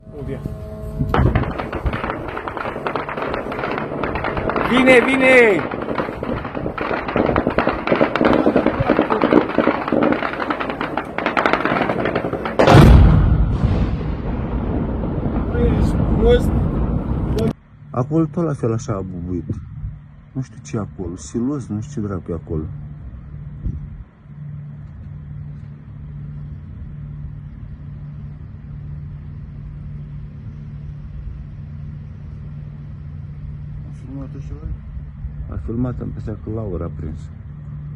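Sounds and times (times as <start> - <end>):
low rumble: 0.0 - 21.2
large explosion: 1.1 - 17.5
rapid gunfire bursts: 1.3 - 13.0.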